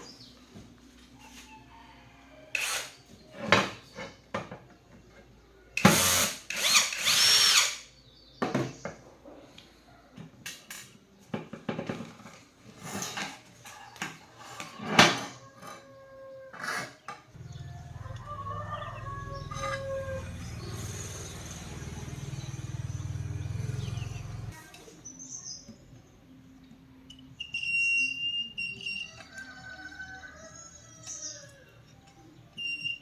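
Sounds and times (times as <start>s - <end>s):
handheld power tool running: 5.8s - 7.8s.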